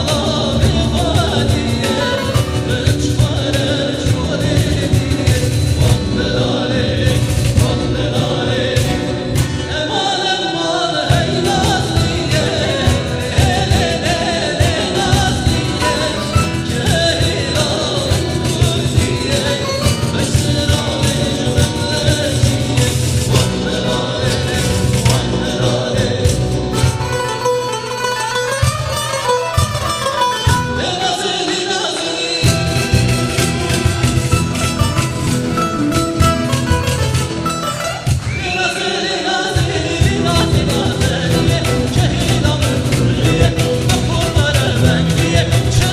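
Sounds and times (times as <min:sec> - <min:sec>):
person singing: 0:00.0 - 0:45.9
instrumental backing with beat: 0:26.2 - 0:31.1, 0:32.4 - 0:38.4.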